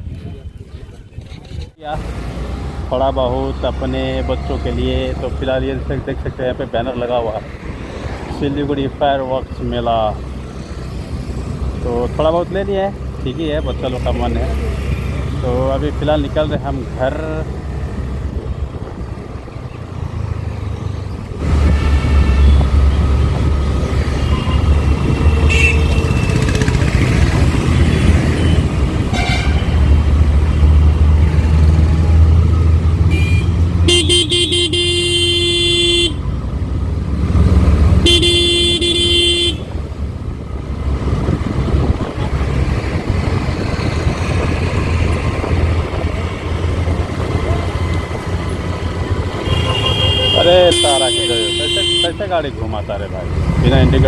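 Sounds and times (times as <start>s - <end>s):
scooter engine and wind rumble: 0.0s - 54.0s
vehicle horn honking: 24.2s - 26.6s, 27.8s - 29.8s, 33.1s - 36.2s, 38.0s - 39.8s, 49.3s - 52.4s.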